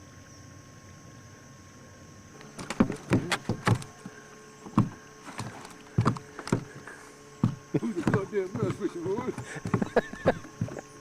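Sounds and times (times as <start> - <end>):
low steady hum: 0.0 - 11.0
irregular knocks and thumps: 2.5 - 10.9.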